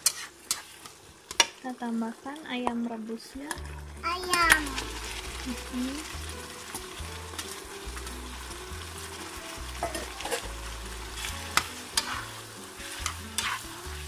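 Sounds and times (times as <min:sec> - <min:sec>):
spatula scraping and knocking pan: 0:00.0 - 0:01.5, 0:09.7 - 0:14.0
food sizzling in a wok: 0:00.0 - 0:14.0.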